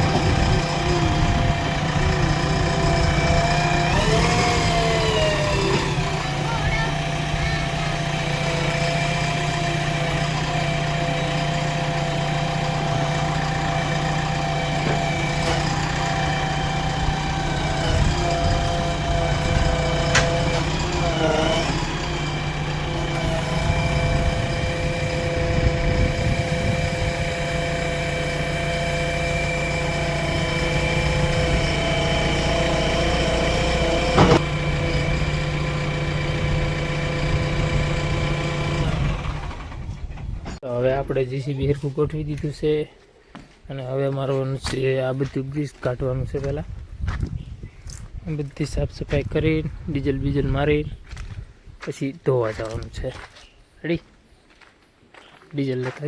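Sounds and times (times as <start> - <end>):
diesel engine running: 0.0 - 40.6
sharp clicks or knocks: 19.9 - 20.8.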